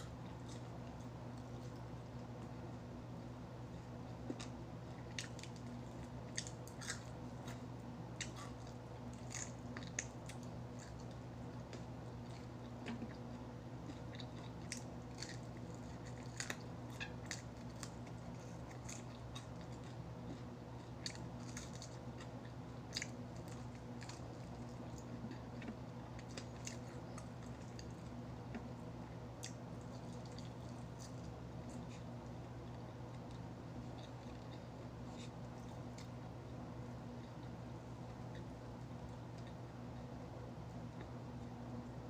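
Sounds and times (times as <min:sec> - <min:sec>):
person chewing crispy food: 0:00.0 - 0:40.2
steady low hum: 0:00.0 - 0:42.0.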